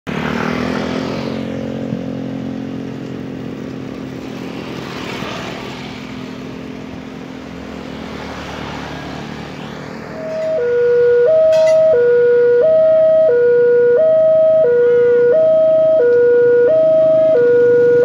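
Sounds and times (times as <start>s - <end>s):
engines humming: 0.1s - 18.0s.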